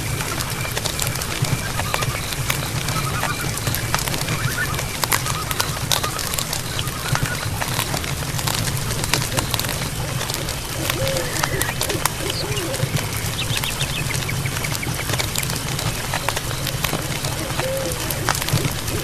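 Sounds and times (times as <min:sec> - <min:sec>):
chirping animal calls: 0:00.0 - 0:19.0
steady hiss: 0:00.0 - 0:19.0.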